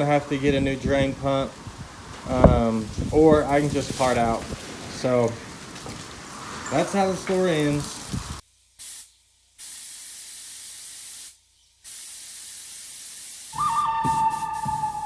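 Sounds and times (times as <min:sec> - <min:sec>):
spray hissing: 0:06.8 - 0:15.0
music: 0:13.6 - 0:15.0.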